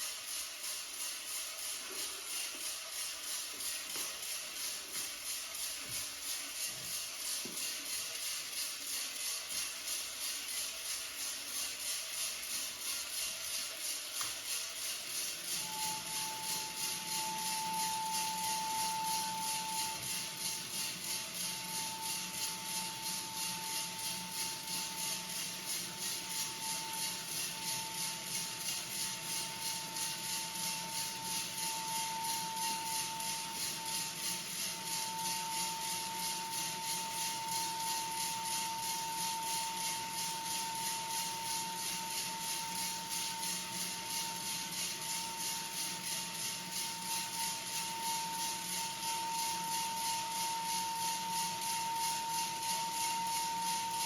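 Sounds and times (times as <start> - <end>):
rhythmic rattle: 0.0 - 54.0
hooting whistle from exhaust device: 15.2 - 54.0.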